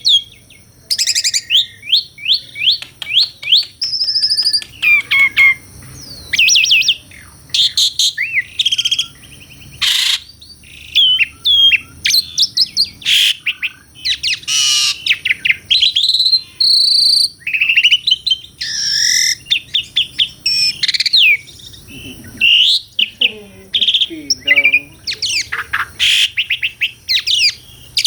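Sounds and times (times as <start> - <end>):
starling singing: 0.0 - 28.0.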